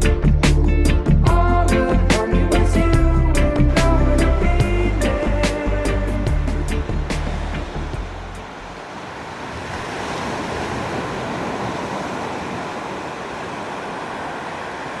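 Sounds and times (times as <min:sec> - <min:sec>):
ocean waves washing onto beach: 0:03.6 - 0:15.0.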